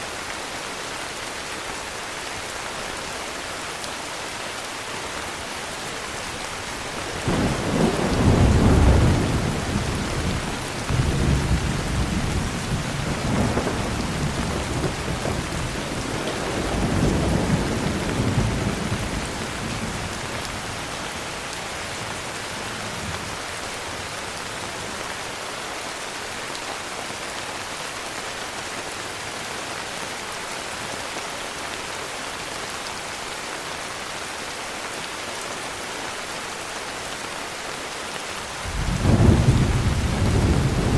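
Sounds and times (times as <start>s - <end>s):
heavy rain: 0.0s - 40.9s
thunder rolling: 7.1s - 20.7s, 38.7s - 40.9s.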